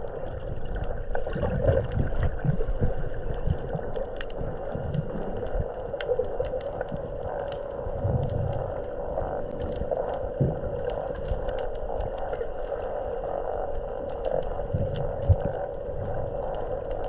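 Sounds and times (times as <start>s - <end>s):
crackling clicks: 0.0s - 17.0s
low muffled rumbles: 0.0s - 17.0s
underwater drone: 0.0s - 17.0s.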